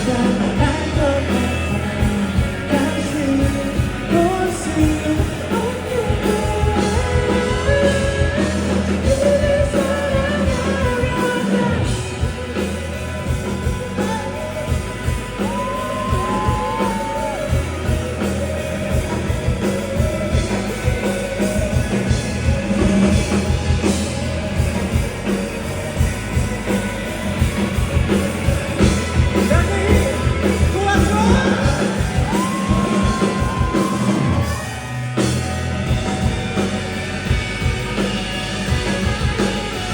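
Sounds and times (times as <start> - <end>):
lead vocalist singing: 0.0 - 24.0, 28.8 - 35.4
live rock band: 0.0 - 39.9.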